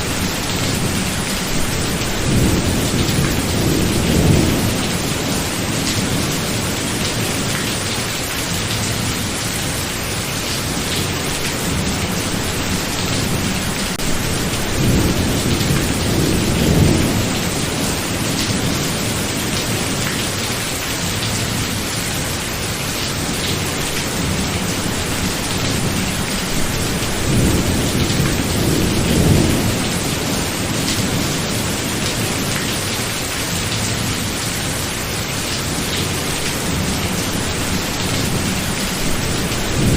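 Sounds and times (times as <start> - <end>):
thunder rumbling: 0.0 - 7.5, 11.0 - 20.0, 23.3 - 33.0, 35.8 - 39.9
steady rain: 0.0 - 39.9.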